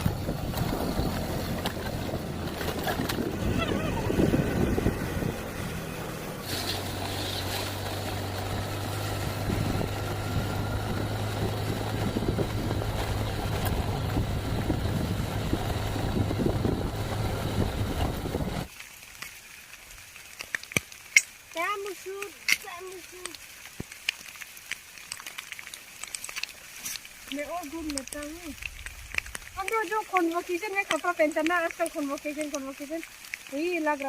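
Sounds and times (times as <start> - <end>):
low motor-like hum: 0.0 - 18.7.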